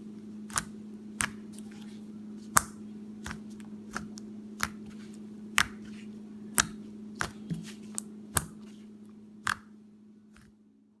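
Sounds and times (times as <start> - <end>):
steady low hum: 0.0 - 11.0
slime clicking and popping: 9.4 - 9.7.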